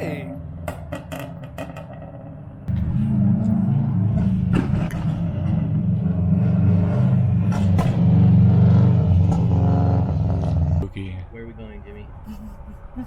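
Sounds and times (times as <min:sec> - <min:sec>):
truck engine revving high: 0:02.7 - 0:10.8.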